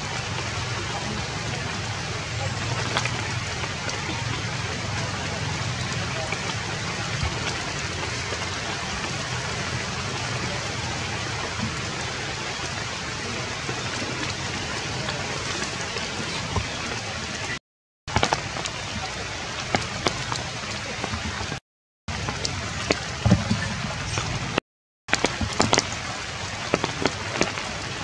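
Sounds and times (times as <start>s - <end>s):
rain hissing on foliage: 0.0s - 28.0s.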